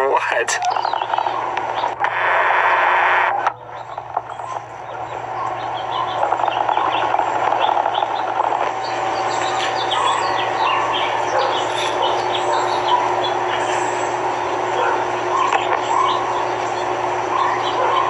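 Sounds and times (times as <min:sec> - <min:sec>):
birds chirping: 0:00.0 - 0:18.0
steady background hum: 0:00.0 - 0:18.0.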